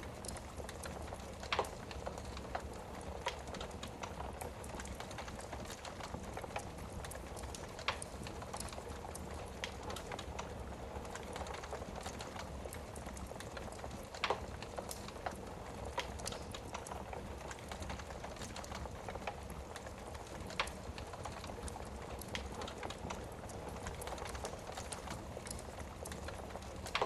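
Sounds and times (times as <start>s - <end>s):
fire popping: 0.0s - 27.0s
wood fire crackling: 0.0s - 27.0s.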